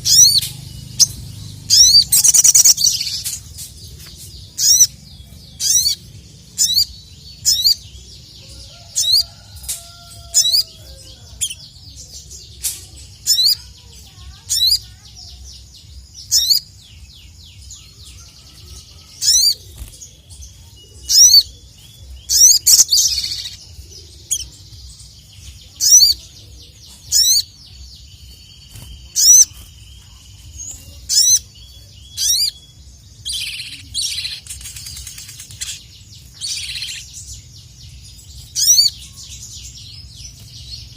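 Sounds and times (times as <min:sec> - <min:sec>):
bird giving sharp high chirps: 0:00.0 - 0:07.9, 0:16.2 - 0:16.8, 0:17.8 - 0:24.7, 0:25.5 - 0:26.3, 0:26.9 - 0:37.1, 0:38.4 - 0:40.9.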